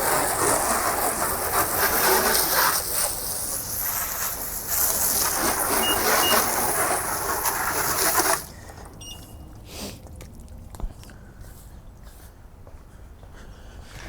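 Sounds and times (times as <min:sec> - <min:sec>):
loud steady hiss: 0:00.0 - 0:08.5
short high beeps: 0:05.7 - 0:06.6, 0:09.0 - 0:09.6.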